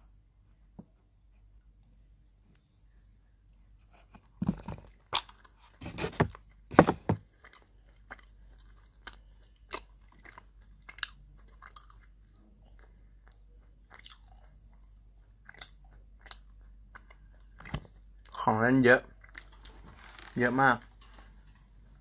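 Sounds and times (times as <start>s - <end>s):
person chewing crunchy snack: 4.5s - 18.4s.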